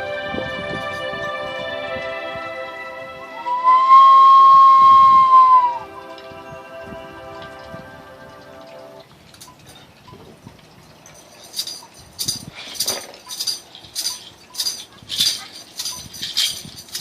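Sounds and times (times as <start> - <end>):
held musical tone: 0.0 - 9.6
shaker rattle beat: 11.0 - 17.0.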